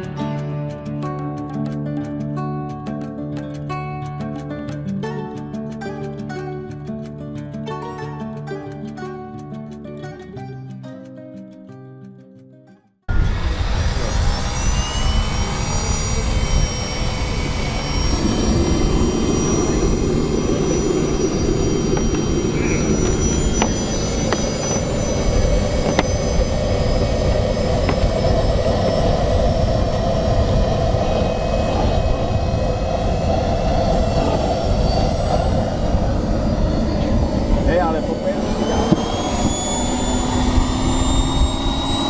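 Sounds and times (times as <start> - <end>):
jet turbine whine and roar: 13.1 - 42.0.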